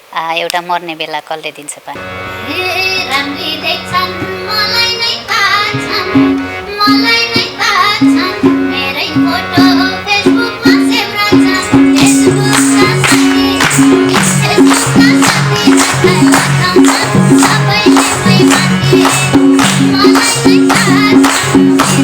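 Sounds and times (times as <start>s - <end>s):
ornamented folk melody: 2.0s - 22.0s
bright percussion: 9.6s - 22.0s
steady drum beat: 11.7s - 22.0s.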